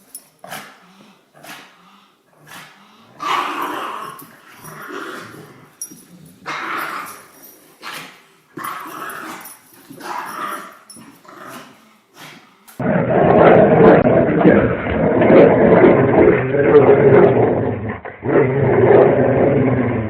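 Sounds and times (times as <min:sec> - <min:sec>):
dog growling in play: 0:00.1 - 0:20.0.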